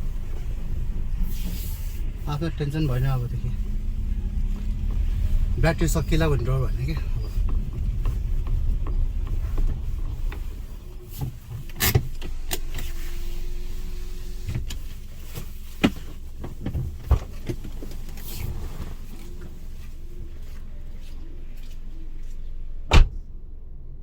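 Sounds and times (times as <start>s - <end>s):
car engine rumble: 0.0s - 24.0s.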